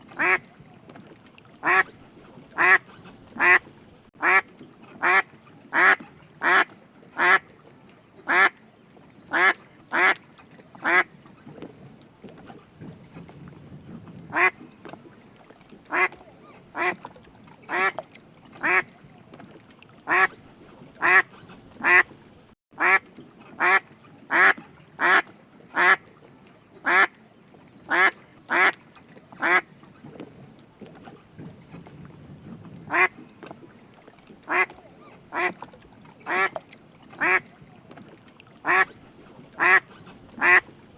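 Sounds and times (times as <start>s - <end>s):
duck quacking: 0.2s - 0.4s, 1.6s - 1.9s, 2.6s - 3.6s, 4.2s - 4.4s, 5.0s - 7.4s, 8.3s - 8.5s, 9.3s - 10.2s, 10.8s - 11.1s, 14.3s - 14.6s, 15.9s - 16.2s, 16.8s - 17.0s, 18.6s - 18.9s, 20.1s - 20.3s, 21.0s - 22.0s, 22.8s - 23.0s, 23.6s - 25.2s, 25.8s - 26.0s, 26.9s - 27.1s, 27.9s - 28.8s, 29.4s - 29.6s, 32.9s - 33.1s, 34.5s - 34.7s, 35.3s - 35.6s, 36.3s - 36.6s, 37.2s - 37.4s, 38.6s - 38.9s, 39.6s - 40.7s.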